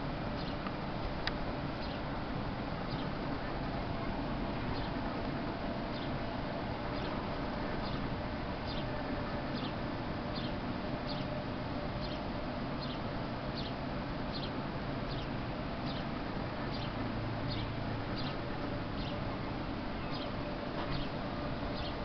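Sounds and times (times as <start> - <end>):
steady background hiss: 0.0 - 22.0
small bird calling: 20.0 - 22.0.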